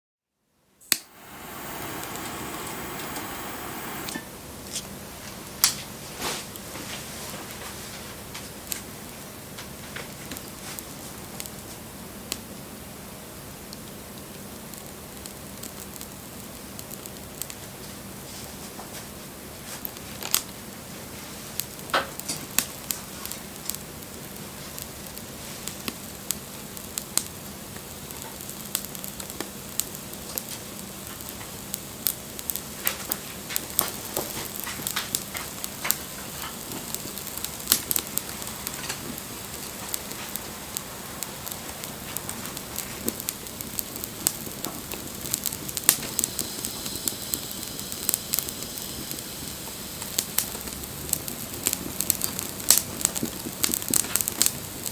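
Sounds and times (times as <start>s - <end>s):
soft hiss of flame: 0.8s - 4.9s, 5.6s - 54.9s
campfire crackling and popping: 0.9s - 4.2s, 21.5s - 54.9s.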